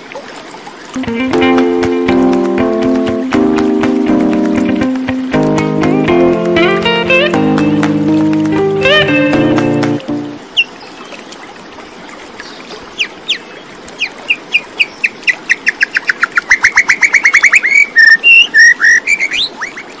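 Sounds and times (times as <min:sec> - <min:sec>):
songbird singing a trill: 0:14.6 - 0:19.8.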